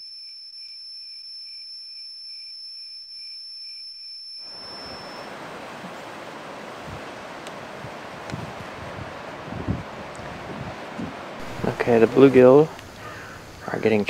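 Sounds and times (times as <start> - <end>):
high-pitched whine: 0.0 - 6.0
soft pulsing tone: 0.0 - 13.7
wind on the microphone: 4.5 - 14.0.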